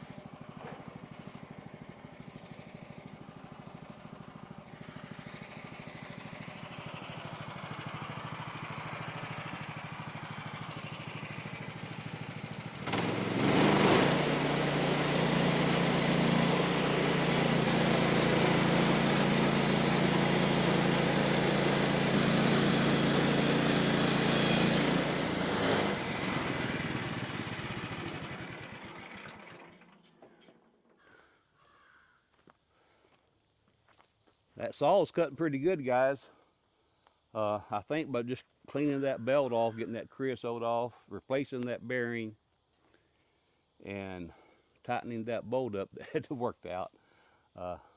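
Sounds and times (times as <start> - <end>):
sawmill gas engine running: 0.0 - 30.5
band saw blade cutting wood: 12.9 - 28.5.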